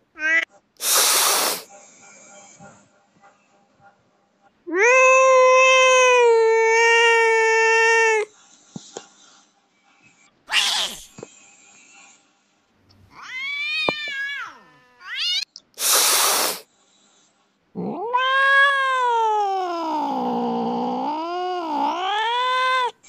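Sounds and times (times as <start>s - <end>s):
cat hissing: 0.8s - 1.7s, 10.5s - 11.2s, 13.3s - 16.7s
cat meowing and yowling: 4.7s - 8.3s, 10.5s - 11.0s, 13.2s - 15.5s, 17.8s - 23.0s.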